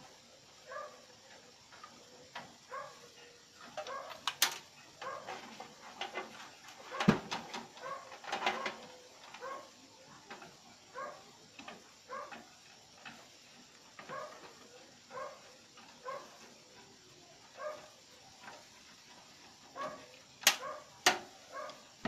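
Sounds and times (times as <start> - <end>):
clicks and knocks of computer parts: 3.8 - 4.7, 6.9 - 9.4, 20.4 - 21.3.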